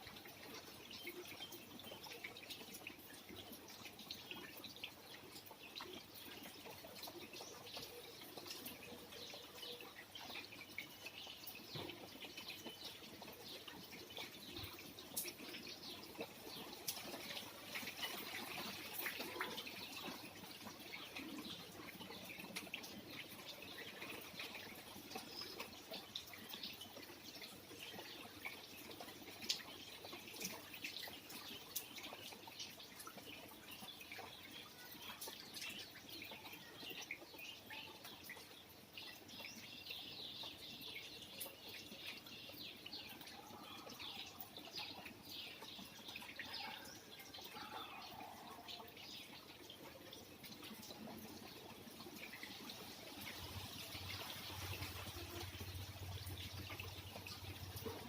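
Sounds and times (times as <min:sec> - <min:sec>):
rain dripping and trickling: 0:00.0 - 0:58.0.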